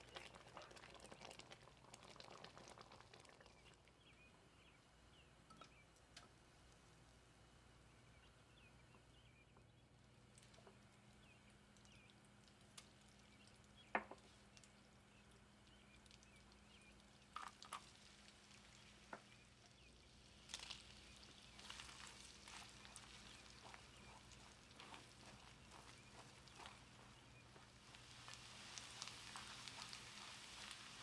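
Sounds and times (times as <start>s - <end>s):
stirring noise: 0.0s - 4.0s
faint sizzling: 10.3s - 31.0s.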